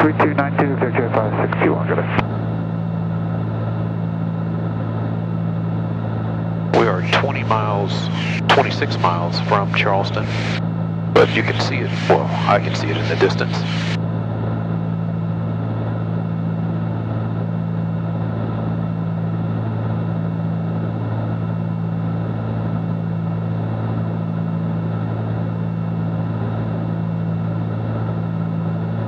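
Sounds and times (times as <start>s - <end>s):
aircraft cabin engine drone: 0.0s - 29.0s.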